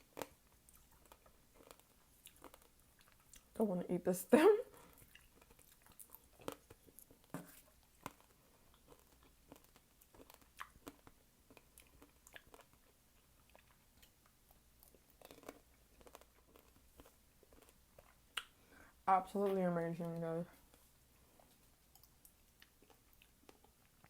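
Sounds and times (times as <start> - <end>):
chewing fresh fruit: 0.0 - 3.6, 4.7 - 24.0.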